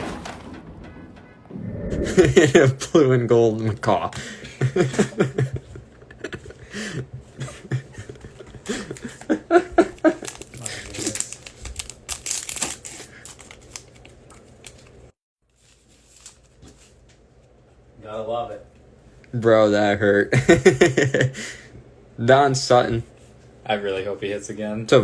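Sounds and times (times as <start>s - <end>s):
wrapper crinkling and tearing: 9.8s - 16.9s.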